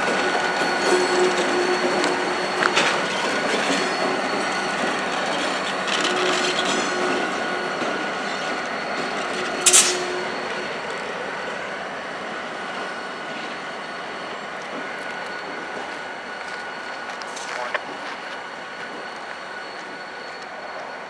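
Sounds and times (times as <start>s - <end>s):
faint high squeal: 0.0s - 21.0s
train wheels rumbling on rails: 0.0s - 21.0s
sharp metal clank: 9.6s - 10.2s.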